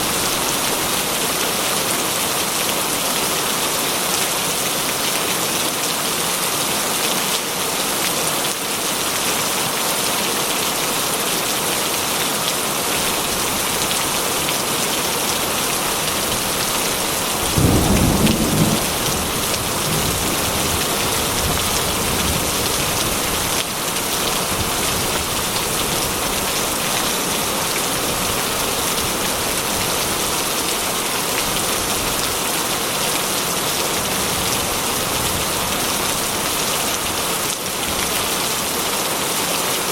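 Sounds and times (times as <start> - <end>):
heavy rain falling: 0.0 - 39.9
thunder rumble: 17.4 - 22.4.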